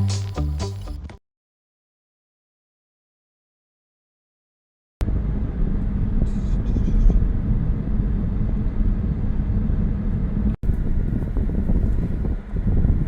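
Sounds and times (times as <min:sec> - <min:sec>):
vehicle rumble: 0:05.0 - 0:13.0.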